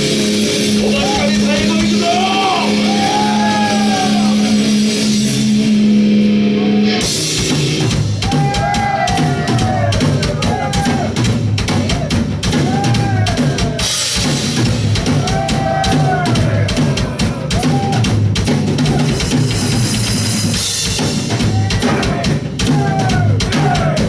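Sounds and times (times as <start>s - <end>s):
rock band playing loud: 0.0s - 24.0s
rapid drum hits: 7.0s - 24.0s.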